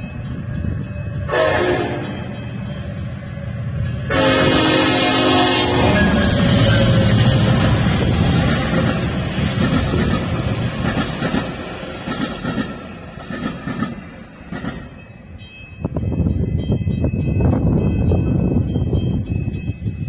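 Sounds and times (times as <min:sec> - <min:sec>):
music: 0:00.0 - 0:04.1, 0:15.0 - 0:20.0
train rolling on rails: 0:00.0 - 0:20.0.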